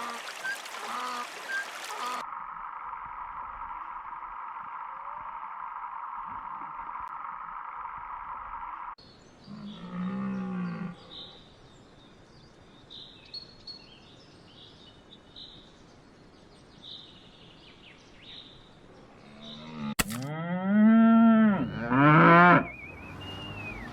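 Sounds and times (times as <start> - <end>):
small birds chirping: 0.0 - 2.2, 21.5 - 23.9
cow mooing: 19.2 - 23.8.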